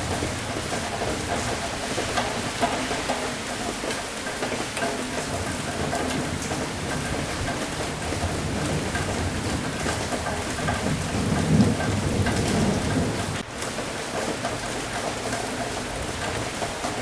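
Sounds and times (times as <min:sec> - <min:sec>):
heavy rain falling: 0:00.0 - 0:17.0
thunder rumbling: 0:05.1 - 0:13.6.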